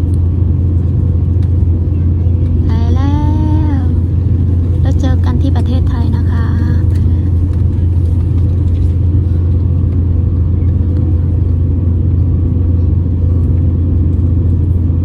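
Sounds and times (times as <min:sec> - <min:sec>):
jet engines rumbling in cabin: 0:00.0 - 0:15.0.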